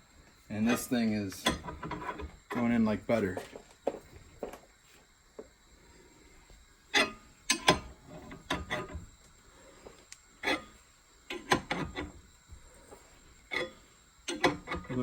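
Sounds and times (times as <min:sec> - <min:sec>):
metallic clicks and clanks: 0:13.5 - 0:15.0.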